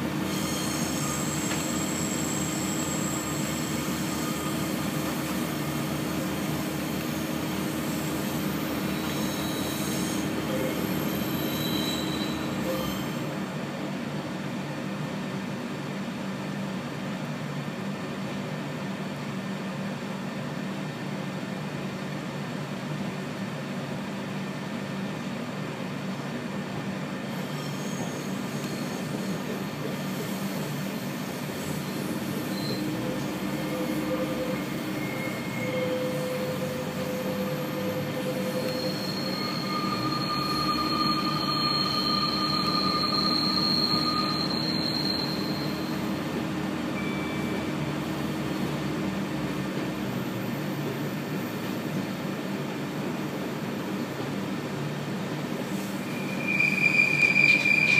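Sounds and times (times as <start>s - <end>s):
train wheels on rails: 0.0s - 14.8s, 26.6s - 57.9s
faint wheel squeals: 0.1s - 5.6s, 8.2s - 13.3s, 27.3s - 46.4s, 55.7s - 57.9s.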